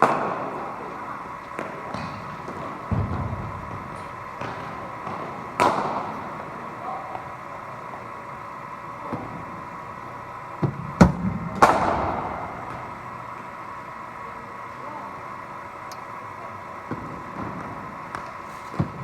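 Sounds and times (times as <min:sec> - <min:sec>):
bowling machine humming: 0:00.0 - 0:19.0
cricket bat striking ball: 0:01.6 - 0:06.2.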